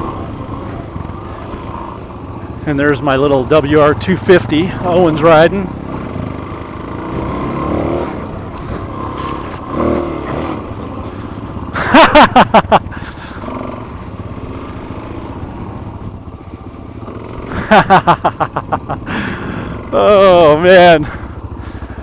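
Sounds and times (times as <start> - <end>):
motorcycle engines on dirt track: 0.0 - 22.0
quick loud engine revs: 5.7 - 12.2.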